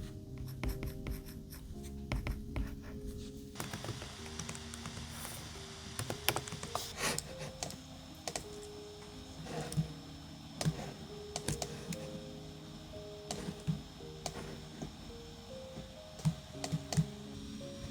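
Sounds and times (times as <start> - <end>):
soft background music: 0.0 - 17.9.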